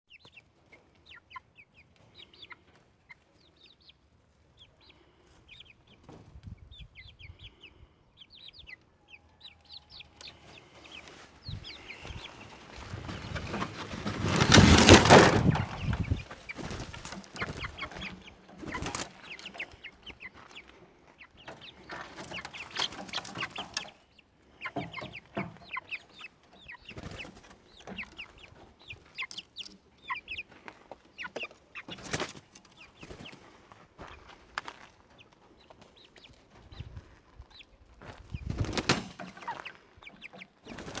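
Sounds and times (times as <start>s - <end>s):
chickens clucking and chirping: 0.1s - 41.0s
loud rustling burst: 12.9s - 17.2s.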